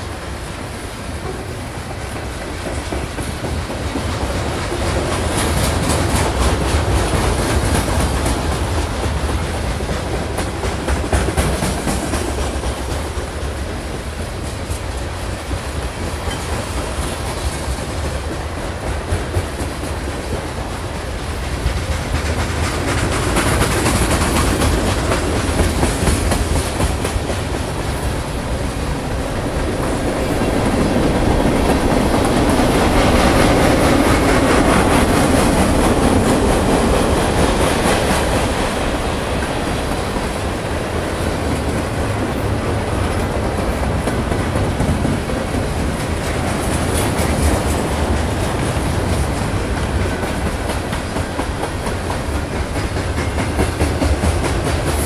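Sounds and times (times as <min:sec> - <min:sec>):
train wheels rumbling and clacking: 0:00.0 - 0:55.0.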